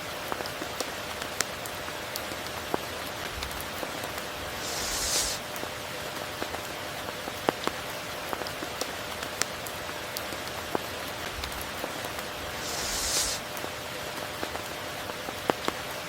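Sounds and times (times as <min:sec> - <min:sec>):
steady rain falling: 0:00.0 - 0:16.0
close raindrops ticking: 0:00.1 - 0:12.6.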